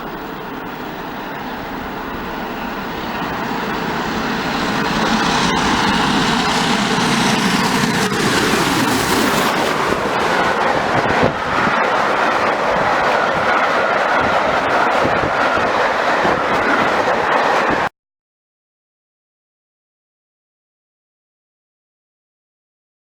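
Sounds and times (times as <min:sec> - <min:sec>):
train passing close by: 0:00.0 - 0:17.9.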